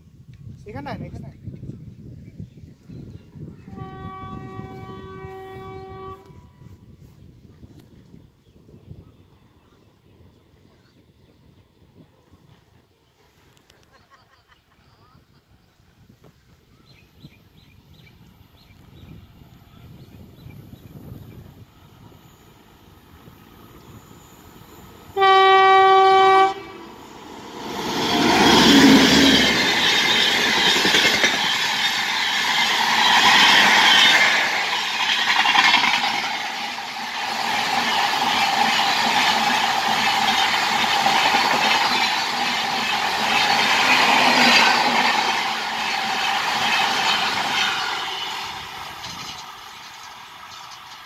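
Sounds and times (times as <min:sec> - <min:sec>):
locomotive horn blast: 0:03.7 - 0:06.5, 0:25.2 - 0:26.9, 0:47.7 - 0:48.6
train wheels rushing on rail: 0:15.9 - 0:51.0.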